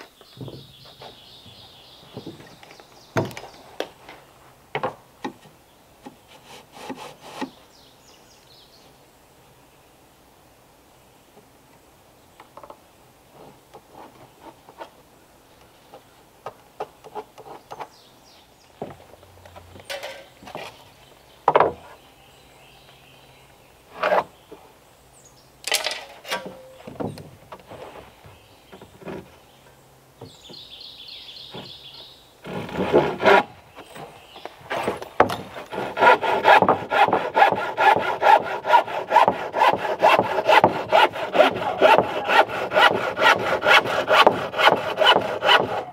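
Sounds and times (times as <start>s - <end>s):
timber knocks and scrapes: 0.2s - 7.6s, 18.8s - 20.8s, 21.5s - 22.0s, 23.9s - 24.4s, 25.7s - 29.6s, 32.4s - 45.9s
hand saw cutting wood: 6.3s - 7.6s, 32.4s - 33.6s, 34.7s - 45.9s.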